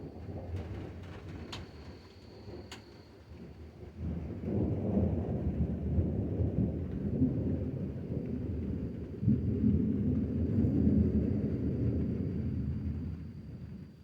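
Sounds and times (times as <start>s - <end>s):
light rain: 0.0s - 14.0s
deep thunder rumbling: 3.9s - 13.9s.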